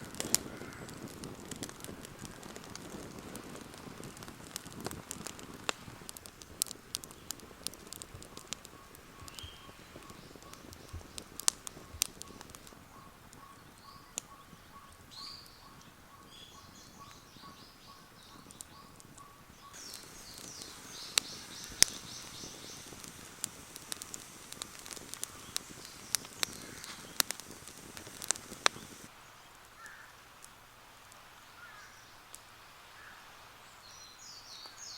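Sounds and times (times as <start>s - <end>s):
campfire crackling and popping: 0.0s - 33.1s
birds chirping: 6.0s - 30.1s.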